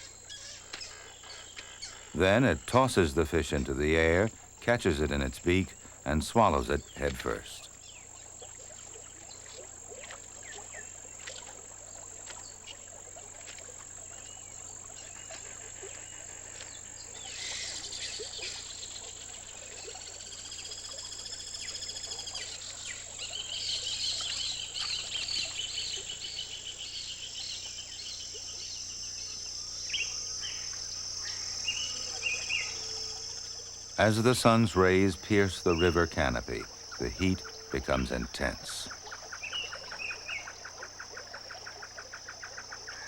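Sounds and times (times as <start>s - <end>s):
high-pitched insect drone: 0.0s - 43.0s
bird calls: 14.2s - 43.0s.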